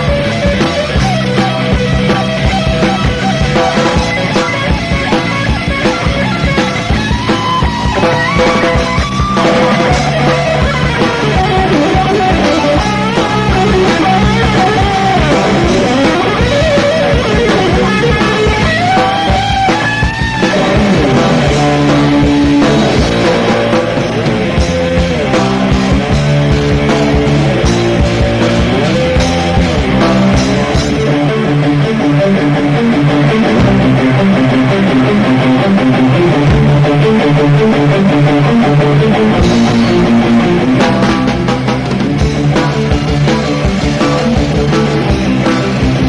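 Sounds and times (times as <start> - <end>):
heavy metal band playing live: 0.0 - 46.0.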